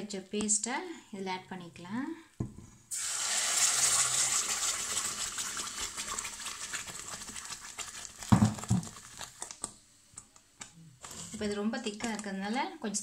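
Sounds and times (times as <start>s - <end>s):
paste sizzling in hot butter: 2.9s - 9.6s.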